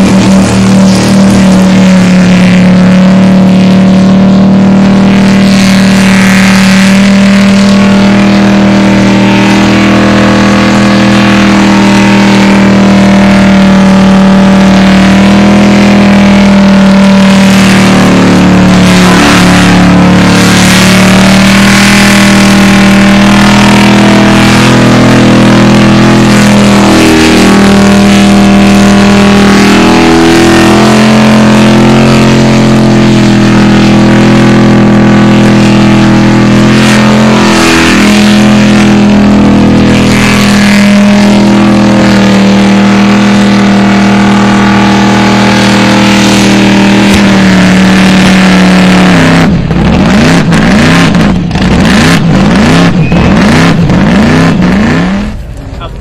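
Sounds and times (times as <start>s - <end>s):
car engine at high revs: 0.0s - 56.0s.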